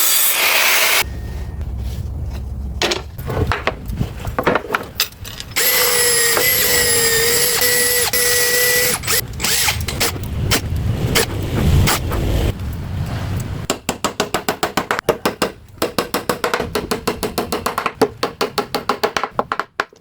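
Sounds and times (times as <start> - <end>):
wood knocking and clattering: 2.8 - 5.5, 14.9 - 20.0
power tool motor whining: 5.6 - 10.2.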